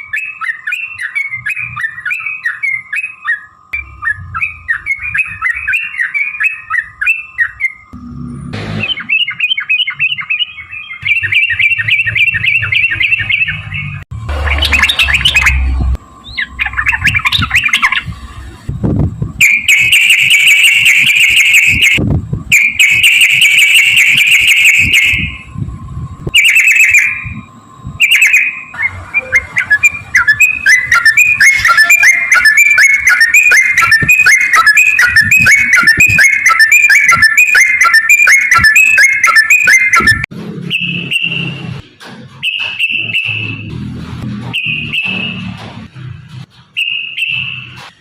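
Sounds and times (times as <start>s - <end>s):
bird singing chattering song: 0.0s - 8.0s, 8.7s - 18.2s, 26.4s - 40.2s
low rumble: 13.8s - 19.4s, 22.0s - 22.5s, 25.2s - 26.4s.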